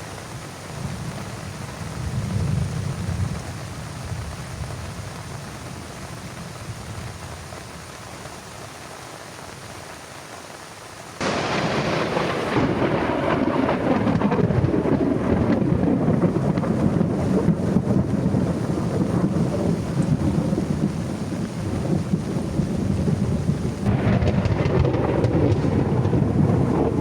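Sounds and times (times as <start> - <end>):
heavy rain: 0.0 - 27.0
thunderclap and rolling thunder: 0.8 - 5.1, 11.2 - 27.0.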